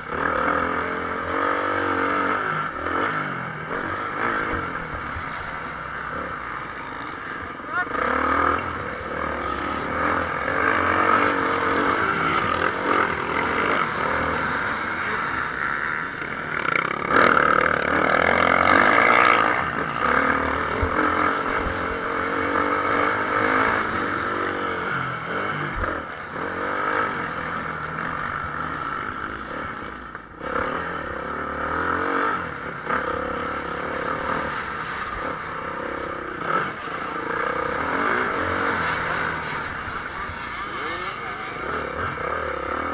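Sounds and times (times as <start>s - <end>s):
motocross motorcycles revving: 0.0s - 42.9s.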